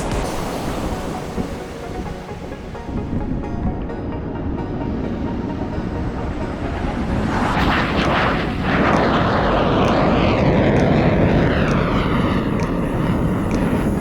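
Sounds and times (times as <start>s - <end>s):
jet aircraft passing overhead: 0.0s - 14.0s.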